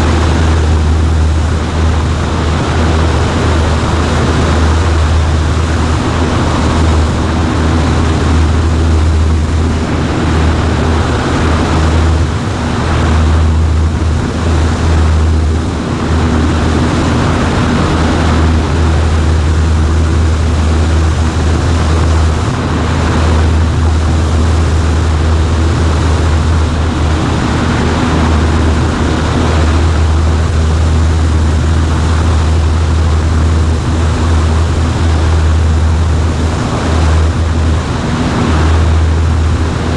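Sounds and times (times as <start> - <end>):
propeller plane engine drone: 0.0 - 39.9
rushing air: 0.0 - 39.9.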